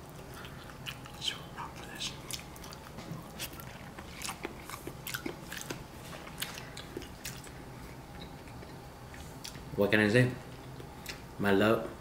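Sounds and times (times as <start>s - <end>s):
person chewing with wet smacks: 0.0s - 9.6s.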